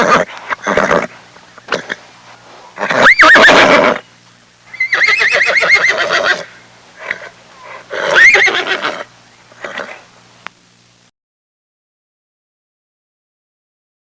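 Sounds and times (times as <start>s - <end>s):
horse whinnying: 0.0s - 1.1s, 2.8s - 4.0s, 4.7s - 10.0s.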